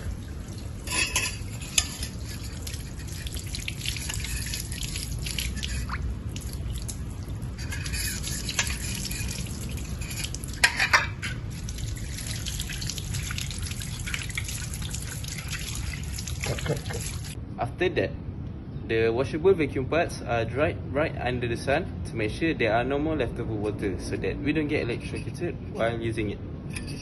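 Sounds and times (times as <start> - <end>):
tap water running and splashing: 0.0 - 17.4.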